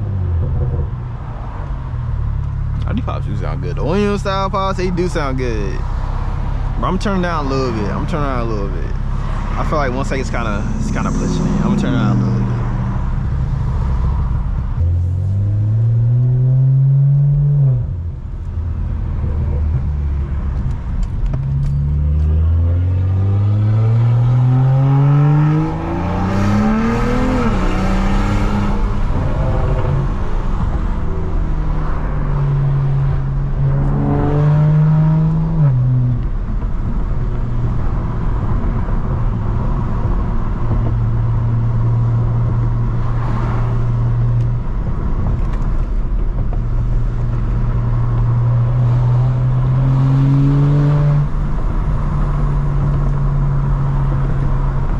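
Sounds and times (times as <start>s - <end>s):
car exhaust accelerating: 0.0s - 54.9s.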